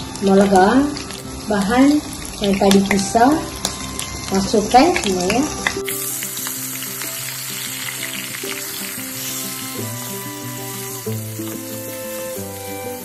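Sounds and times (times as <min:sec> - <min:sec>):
background music: 0:00.0 - 0:13.0
chili paste sizzling in oil: 0:00.0 - 0:13.0
spatula stirring in pan: 0:05.9 - 0:13.0.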